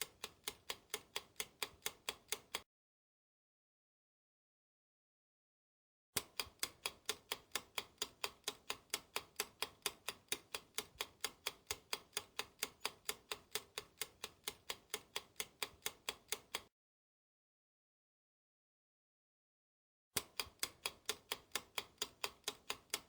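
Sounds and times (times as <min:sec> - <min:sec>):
clock ticking: 0:00.0 - 0:02.6, 0:06.2 - 0:16.7, 0:20.2 - 0:23.0.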